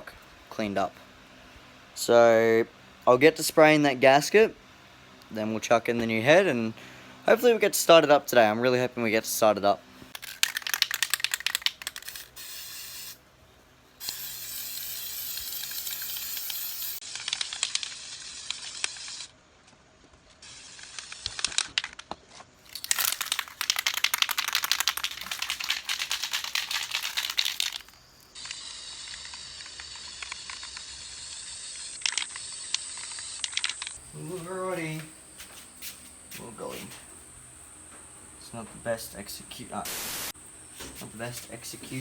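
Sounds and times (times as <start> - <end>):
spray can hissing: 10.2 - 13.2, 14.0 - 17.0, 22.7 - 31.4, 34.2 - 37.0, 39.8 - 42.0.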